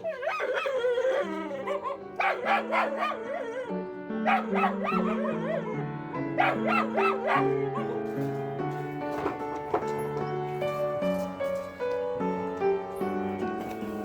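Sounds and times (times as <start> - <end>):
dog barking: 0.0 - 8.1
background music with low notes: 0.0 - 14.0.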